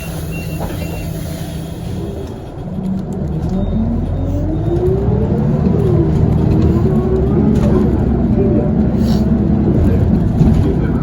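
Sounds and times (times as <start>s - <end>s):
bus engine pulling away: 0.0s - 11.0s.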